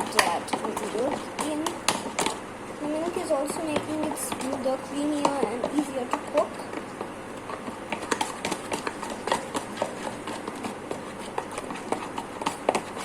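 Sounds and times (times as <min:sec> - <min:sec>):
spoon scraping a bowl: 0:07.6 - 0:13.0.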